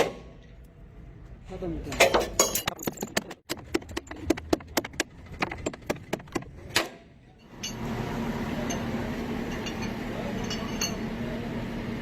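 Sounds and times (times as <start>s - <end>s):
hand tools clinking on metal: 9.5s - 11.1s.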